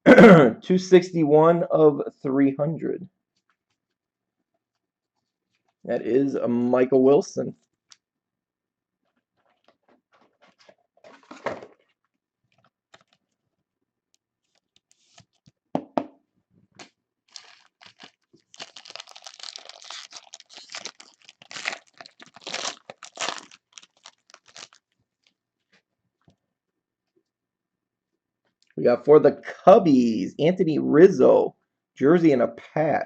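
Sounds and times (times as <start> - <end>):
wrapper crinkling and tearing: 12.6 - 13.2, 16.8 - 25.8.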